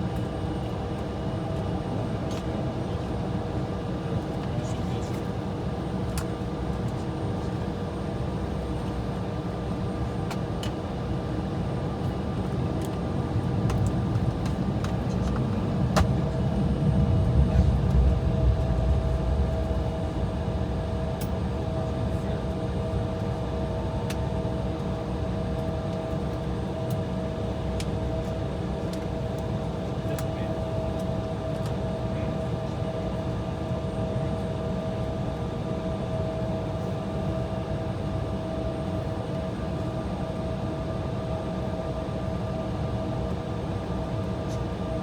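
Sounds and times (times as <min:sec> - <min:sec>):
airliner cabin engine rumble: 0:00.0 - 0:45.0
jet taking off outside: 0:13.4 - 0:23.8
steady hum tone: 0:16.2 - 0:23.5.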